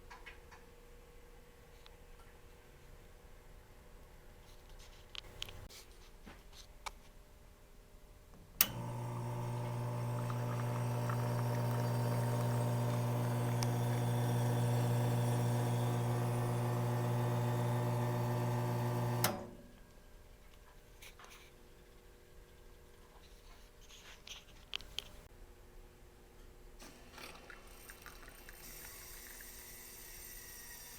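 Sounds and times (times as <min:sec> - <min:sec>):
espresso machine pump humming: 0:05.2 - 0:05.7, 0:08.6 - 0:19.6, 0:26.9 - 0:30.9
pump switch click: 0:08.6 - 0:19.6.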